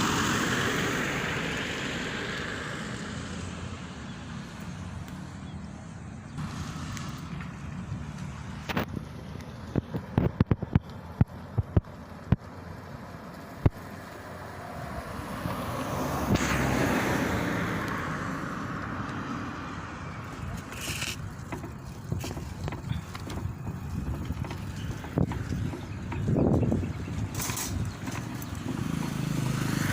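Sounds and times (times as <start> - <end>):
vehicle passing by: 0.0 - 29.9
wind on microphone: 20.4 - 28.7.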